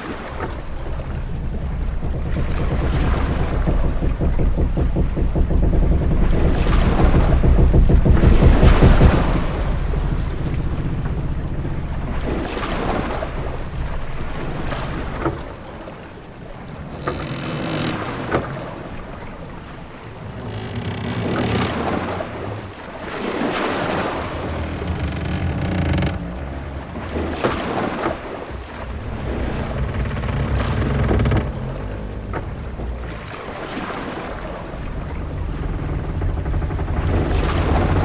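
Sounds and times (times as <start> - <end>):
waves washing: 0.0 - 38.0
wind rushing around a ship: 0.0 - 38.0
short sharp knocks: 0.3 - 15.5.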